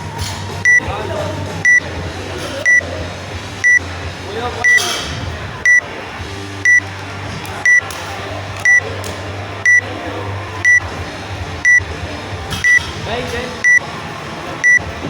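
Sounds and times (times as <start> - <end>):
high-pitched timer beeps: 0.6 - 0.8, 1.6 - 1.8, 2.6 - 2.8, 5.6 - 5.8, 6.6 - 6.8, 7.6 - 7.8, 8.6 - 8.8, 9.6 - 9.8, 10.6 - 10.8, 11.6 - 11.8, 12.6 - 12.8, 14.6 - 14.8.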